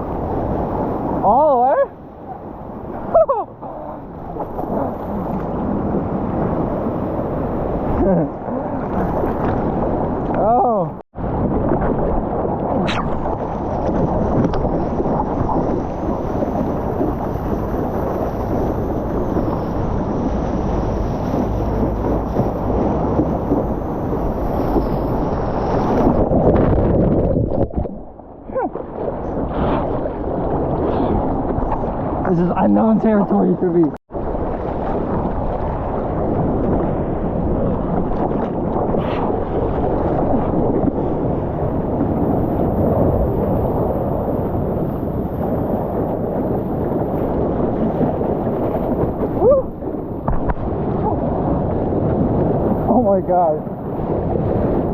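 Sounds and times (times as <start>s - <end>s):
sea water rushing: 0.0s - 54.9s
wind buffeting microphone: 0.0s - 54.9s.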